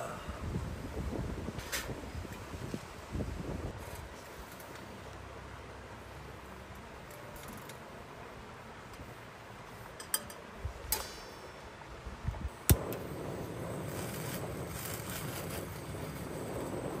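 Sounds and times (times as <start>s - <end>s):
faint steady background noise: 0.0s - 17.0s.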